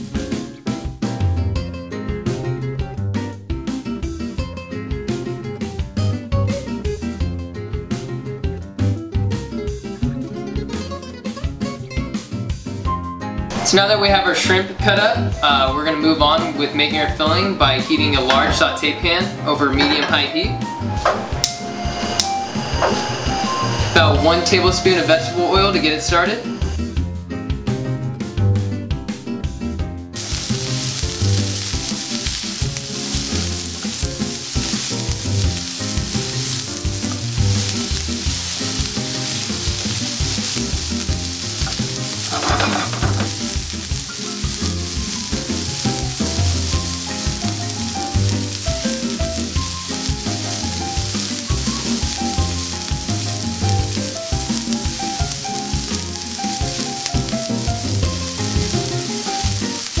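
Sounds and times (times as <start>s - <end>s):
food sizzling in oil: 13.5s - 27.0s, 30.2s - 60.0s
spatula stirring: 30.2s - 60.0s.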